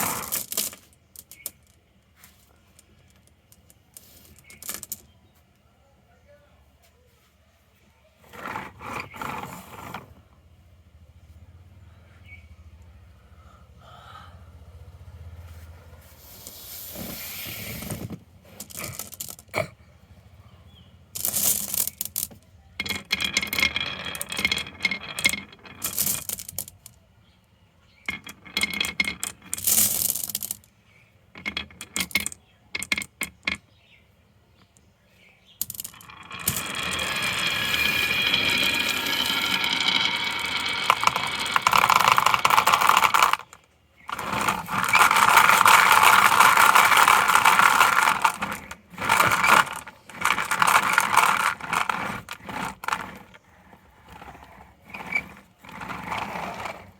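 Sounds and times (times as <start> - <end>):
marbles rattling down a marble run: 0.0 - 1.8, 3.1 - 5.1, 8.2 - 10.1, 16.4 - 19.5, 21.1 - 27.0, 28.0 - 30.7, 31.4 - 33.6, 35.6 - 56.9.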